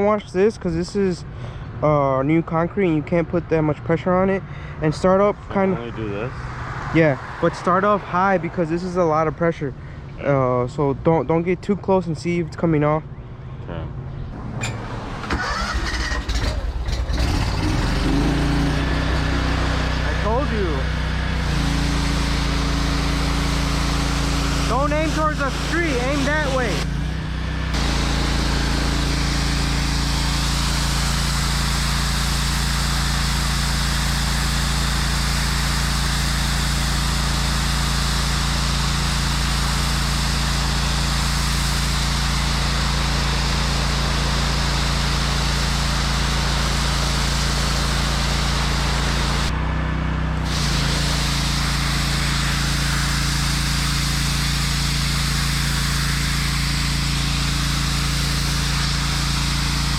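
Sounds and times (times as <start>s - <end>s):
pressure washer engine drone: 2.4s - 10.5s, 14.3s - 59.9s
water jet hissing on concrete: 17.6s - 26.9s, 27.7s - 49.5s, 50.4s - 59.9s.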